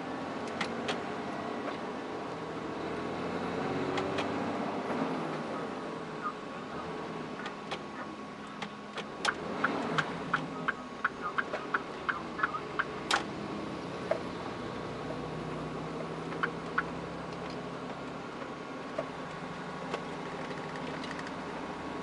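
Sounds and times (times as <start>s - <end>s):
diesel truck engine running: 0.0s - 22.0s
sharp clicks and ticks: 19.9s - 21.4s.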